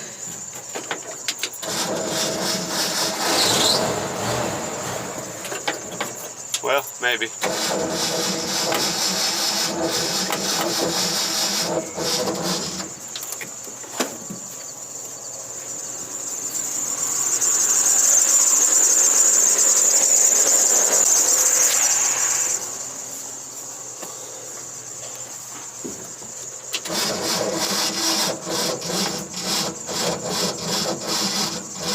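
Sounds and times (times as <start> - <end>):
high-pitched drive belt squeal: 0.5 - 13.4, 14.4 - 23.9, 26.6 - 31.9
car engine running unevenly: 7.4 - 13.3.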